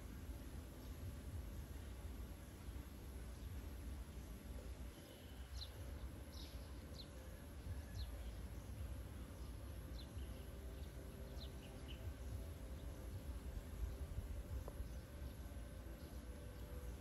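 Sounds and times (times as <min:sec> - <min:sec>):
steady low rumble: 0:00.0 - 0:17.0
small bird chirping: 0:04.9 - 0:17.0.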